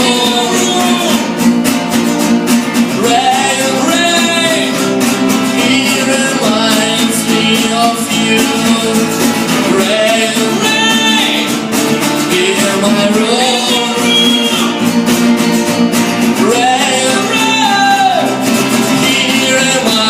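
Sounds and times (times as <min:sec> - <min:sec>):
person singing long notes: 0:00.0 - 0:01.4
acoustic guitar playing: 0:00.0 - 0:20.0.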